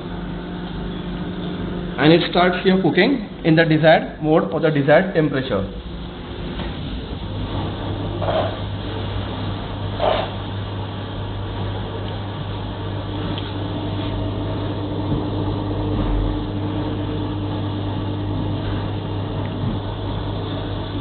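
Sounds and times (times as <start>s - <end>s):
microwave oven low hum: 0.0s - 21.0s.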